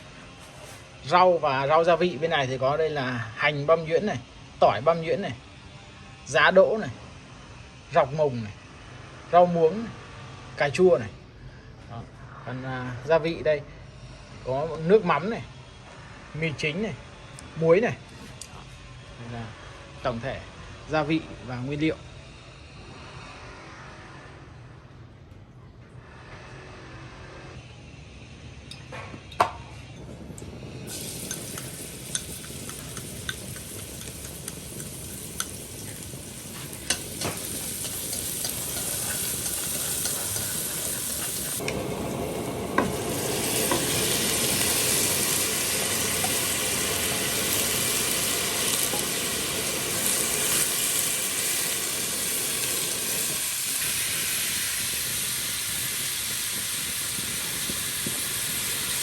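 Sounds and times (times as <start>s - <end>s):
food sizzling in hot oil: 30.4s - 59.0s.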